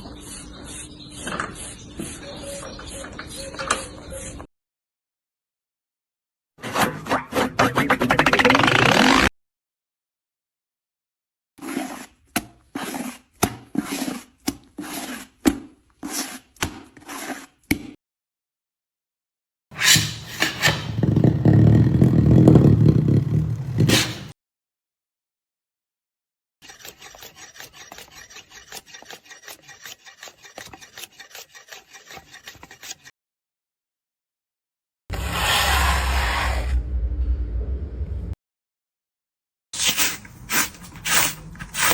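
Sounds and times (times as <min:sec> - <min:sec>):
hand tool scraping wood: 0:11.6 - 0:15.4, 0:16.0 - 0:17.6, 0:19.8 - 0:24.3, 0:26.6 - 0:33.1, 0:39.8 - 0:41.9.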